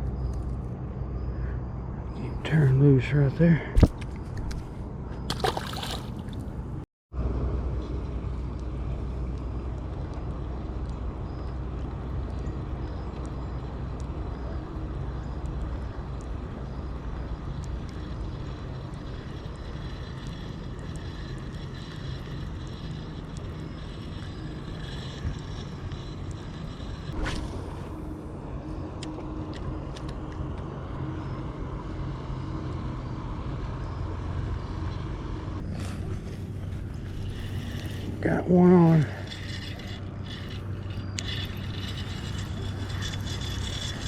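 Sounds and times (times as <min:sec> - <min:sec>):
distant engine drone: 0:00.0 - 0:44.0.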